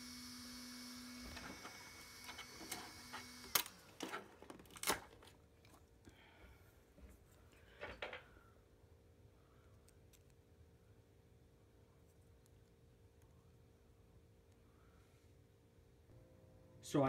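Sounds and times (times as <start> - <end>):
stepper motors humming: 0.0 - 3.8.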